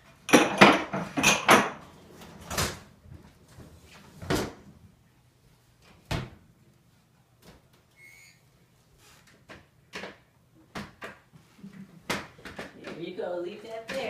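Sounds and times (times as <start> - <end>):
dishes clinking: 0.3 - 1.8
drawers and cupboards knocking shut: 0.3 - 1.8.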